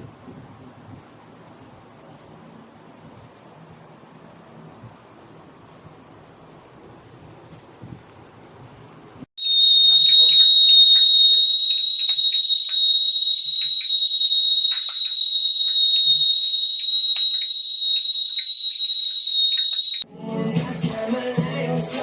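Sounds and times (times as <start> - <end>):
kettle whistling: 9.4 - 20.0.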